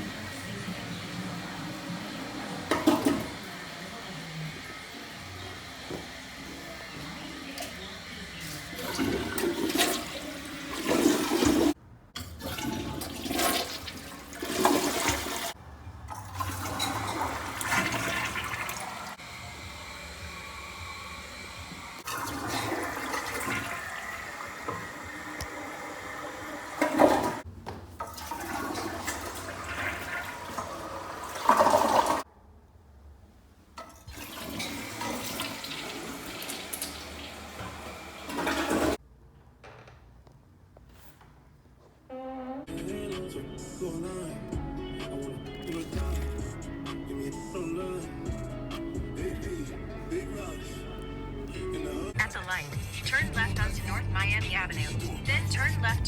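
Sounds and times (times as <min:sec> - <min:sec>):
toilet flushing: 0:00.0 - 0:32.3, 0:33.8 - 0:39.0, 0:44.0 - 0:50.1.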